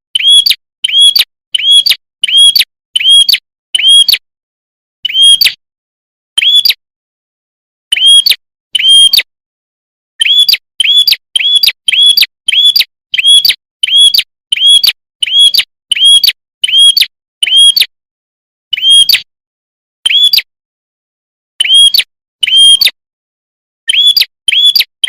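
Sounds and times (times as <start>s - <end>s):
bird chirps sweeping up: 0.2s - 4.1s, 5.0s - 5.6s, 6.4s - 6.8s, 10.2s - 17.8s, 18.7s - 19.3s, 20.0s - 20.5s, 23.9s - 24.9s.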